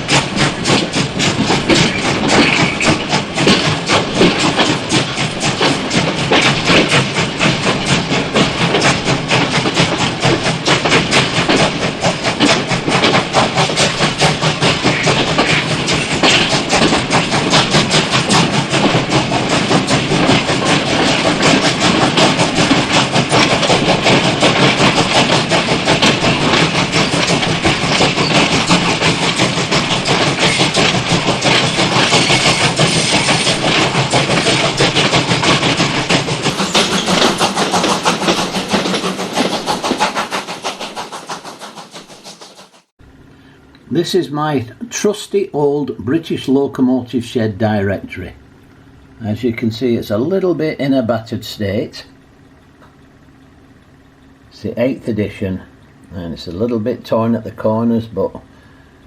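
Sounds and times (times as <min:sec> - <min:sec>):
train clattering: 0:00.0 - 0:59.0.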